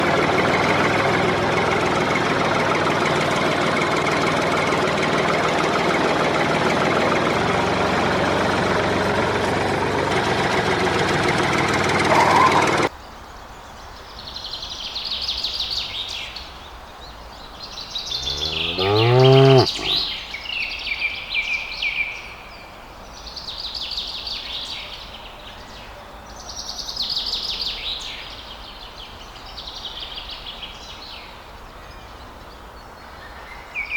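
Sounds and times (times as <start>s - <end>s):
birds chirping: 17.4s - 20.2s
loud low rising call: 18.1s - 20.1s.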